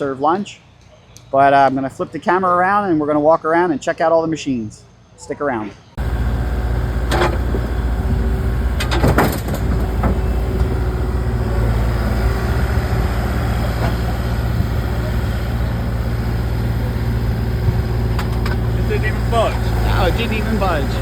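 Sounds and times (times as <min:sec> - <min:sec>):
gas engine running: 0:06.0 - 0:21.0
knocks and clatters of wood: 0:08.8 - 0:10.2.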